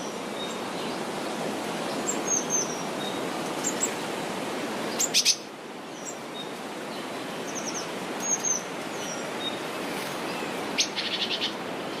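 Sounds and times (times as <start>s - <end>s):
birds chirping and calling: 4.9s - 6.6s, 7.4s - 12.0s.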